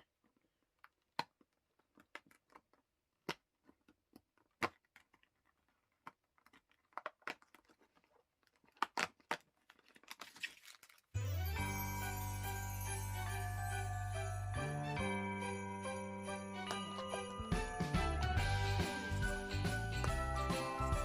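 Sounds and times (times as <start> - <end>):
packaging crinkling: 3.7 - 11.2
cardboard tearing: 4.4 - 11.1.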